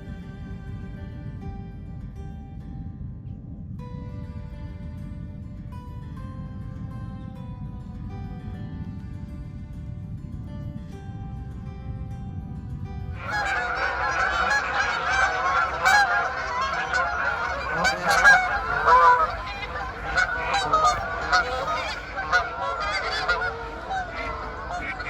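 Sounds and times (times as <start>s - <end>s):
flock of geese honking: 13.2s - 25.0s.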